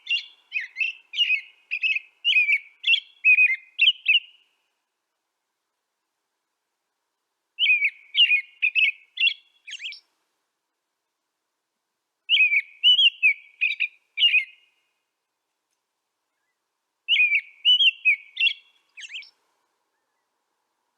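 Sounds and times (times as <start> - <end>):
songbird warbling whistled notes: 0.0 - 4.5, 7.6 - 10.1, 12.3 - 14.8, 16.3 - 20.3.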